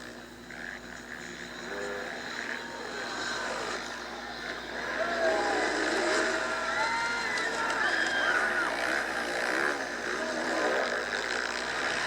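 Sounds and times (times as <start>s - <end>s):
motocross bike engines revving: 0.5s - 12.0s.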